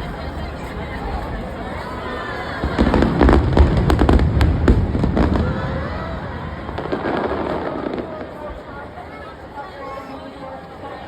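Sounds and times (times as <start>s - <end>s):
fireworks rumble: 0.0s - 9.8s
fireworks bangs and crackles: 2.4s - 9.4s.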